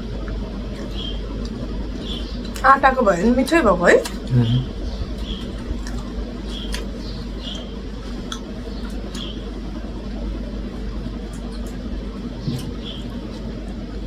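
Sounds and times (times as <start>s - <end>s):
low background hum: 0.0s - 14.0s
person eating: 4.0s - 4.8s, 12.4s - 13.6s.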